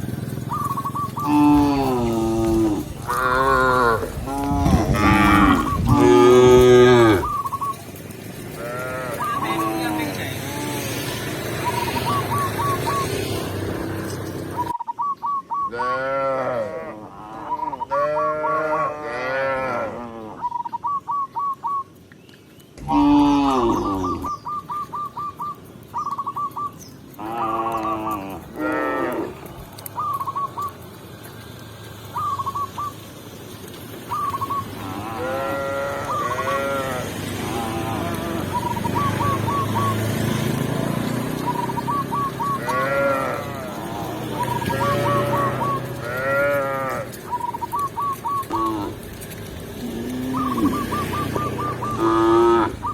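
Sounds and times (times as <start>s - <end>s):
cattle mooing: 1.2s - 7.5s, 8.5s - 11.2s, 15.7s - 20.4s, 22.8s - 24.4s, 27.2s - 29.9s, 34.7s - 47.8s, 48.4s - 52.8s.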